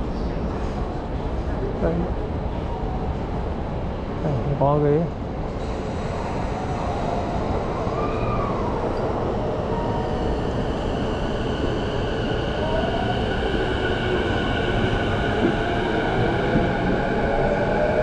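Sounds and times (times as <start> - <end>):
electric train rumbling: 0.0 - 18.0.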